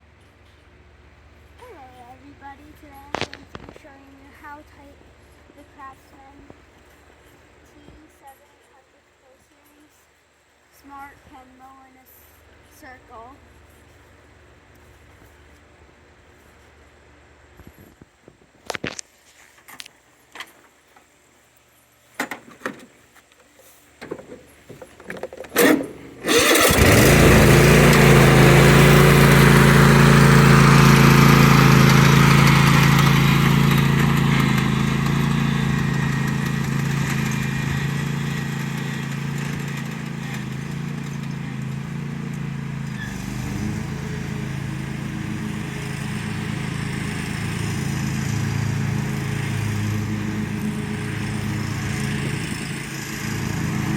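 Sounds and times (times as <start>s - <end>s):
lawn tractor engine running: 24.1s - 53.9s.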